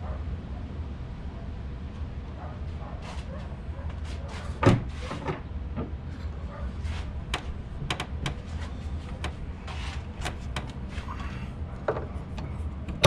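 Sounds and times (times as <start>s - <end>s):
steady low hum: 0.0s - 13.0s
gas strut clicking and knocking: 7.2s - 13.0s.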